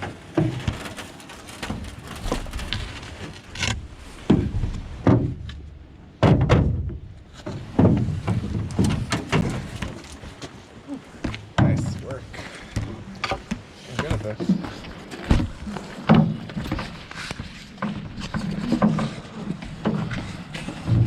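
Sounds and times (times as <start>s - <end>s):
hollow knocks of canoe handling: 3.6s - 10.6s, 11.2s - 21.0s.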